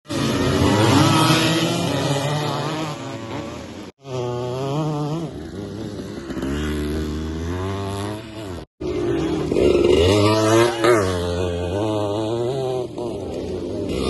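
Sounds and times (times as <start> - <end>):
dirt bike engines revving: 0.1 - 14.0.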